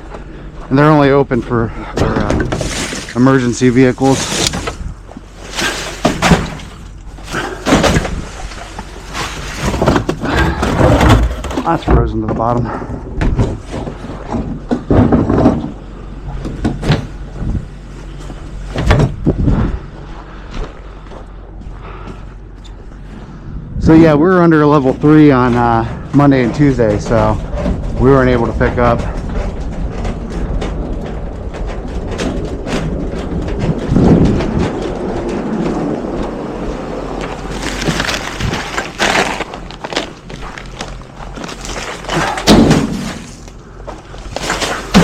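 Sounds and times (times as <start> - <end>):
garbage truck engine humming: 0.0 - 45.0
clattering knocks and rattles: 1.3 - 20.0, 24.6 - 45.0
trash can banging against truck: 1.8 - 3.2, 4.0 - 15.8, 18.7 - 19.3, 37.3 - 45.0
loud thump: 42.2 - 43.5.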